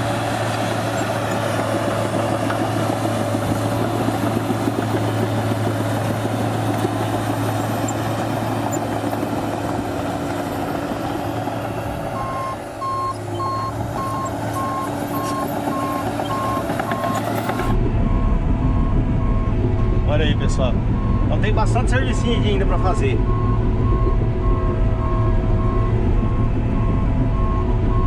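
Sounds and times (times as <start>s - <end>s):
diesel engine running under load: 0.0s - 28.0s
reversing alarm beeping: 12.1s - 28.0s.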